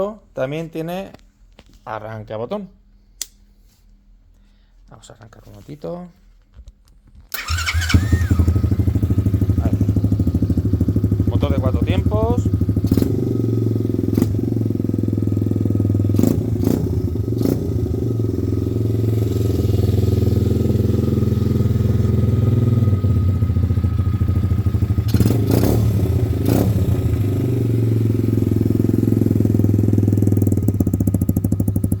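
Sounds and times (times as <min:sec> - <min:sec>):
motorbike engine idling: 0:07.4 - 0:32.0.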